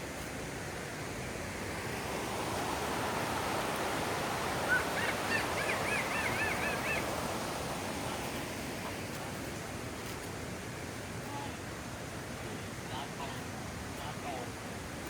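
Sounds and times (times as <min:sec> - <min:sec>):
waterfall rushing: 0:01.0 - 0:09.8.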